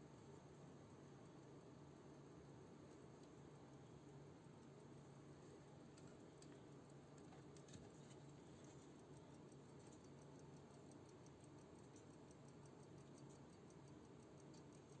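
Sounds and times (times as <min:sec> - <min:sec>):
mechanical clock ticking: 0:08.4 - 0:15.0.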